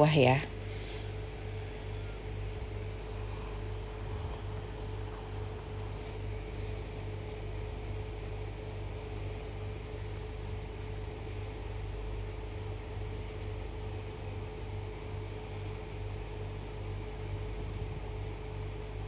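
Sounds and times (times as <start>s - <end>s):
steady mechanical hum: 0.0s - 19.0s
low rumble: 1.7s - 5.6s.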